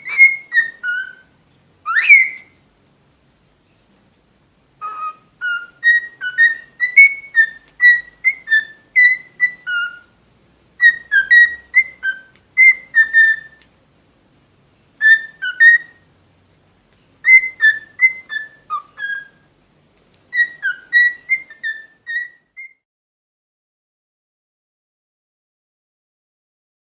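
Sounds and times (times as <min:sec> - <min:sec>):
bird whistling: 0:00.0 - 0:02.6, 0:04.8 - 0:10.2, 0:10.8 - 0:13.6, 0:15.0 - 0:16.0, 0:17.2 - 0:19.5, 0:20.3 - 0:22.8.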